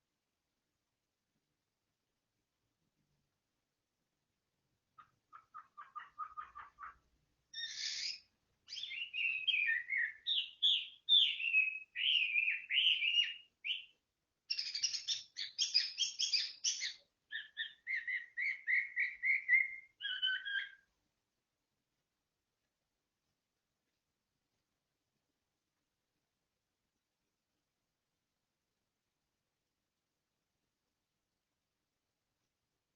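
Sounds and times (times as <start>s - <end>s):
songbird singing: 4.9s - 21.0s.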